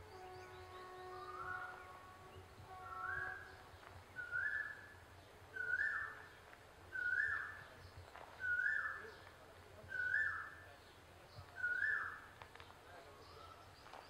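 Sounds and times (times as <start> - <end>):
bird whistled call: 0.1 - 2.0, 2.8 - 5.0, 5.6 - 7.7, 8.4 - 9.0, 9.9 - 10.6, 11.6 - 12.3.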